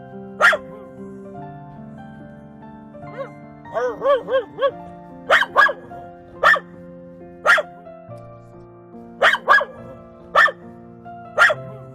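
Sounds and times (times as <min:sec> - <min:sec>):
background music: 0:00.0 - 0:11.9
dog barking: 0:00.3 - 0:01.2, 0:03.1 - 0:06.8, 0:07.4 - 0:07.8, 0:09.2 - 0:11.9.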